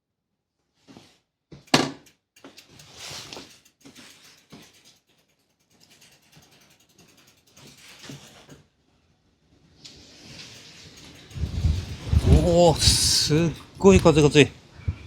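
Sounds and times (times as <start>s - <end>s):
clicks and clatter of handled objects: 1.6s - 8.6s, 10.2s - 14.4s
rustling: 2.4s - 6.7s.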